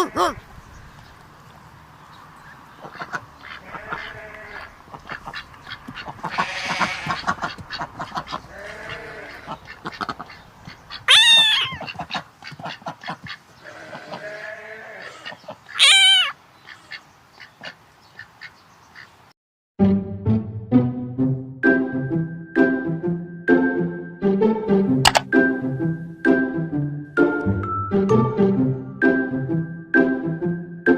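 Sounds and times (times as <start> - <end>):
goats bleating: 0.0 - 0.4, 3.5 - 4.7, 6.2 - 7.4, 8.5 - 9.6, 11.1 - 12.0, 13.6 - 16.3.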